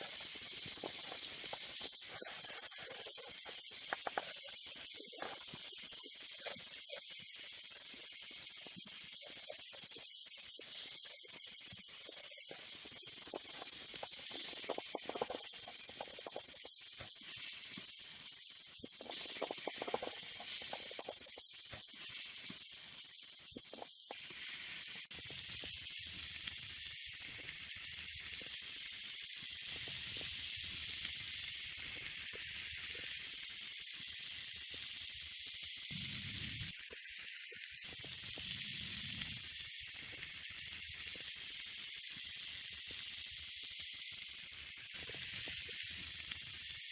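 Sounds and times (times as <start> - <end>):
meat sizzling on hot metal: 0.0 - 46.9.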